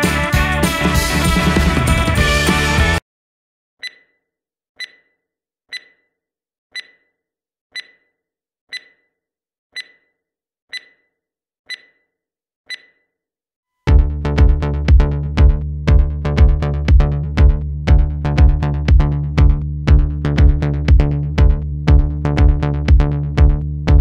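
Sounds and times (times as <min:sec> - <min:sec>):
background music: 0:00.0 - 0:03.0.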